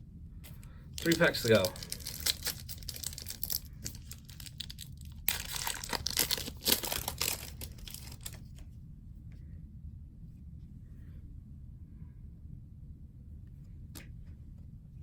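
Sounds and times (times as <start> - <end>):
wrapper tearing and crinkling: 1.0 - 8.5.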